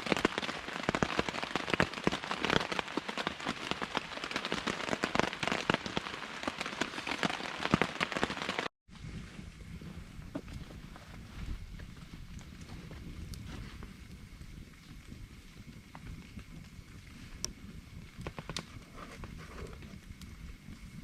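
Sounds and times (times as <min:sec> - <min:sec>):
heavy rain downpour: 0:00.0 - 0:08.7.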